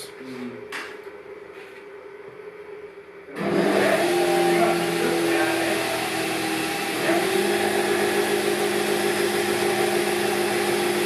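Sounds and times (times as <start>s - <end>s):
drilling machine motor humming: 3.4s - 11.0s.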